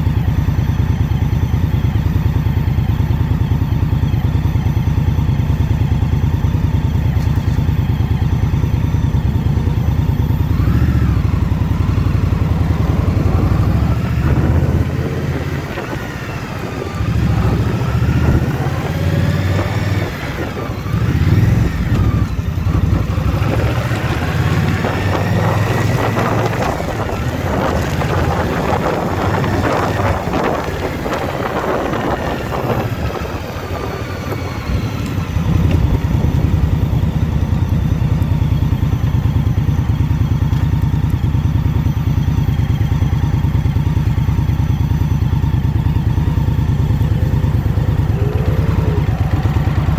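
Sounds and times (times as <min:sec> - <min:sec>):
motorcycle engine running: 0:00.0 - 0:49.9
wind noise: 0:09.6 - 0:39.0, 0:45.6 - 0:49.9.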